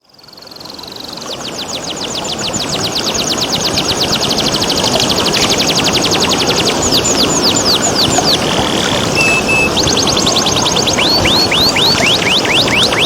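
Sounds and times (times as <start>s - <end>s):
running water: 0.1s - 13.0s
canary singing a trill: 5.4s - 13.0s.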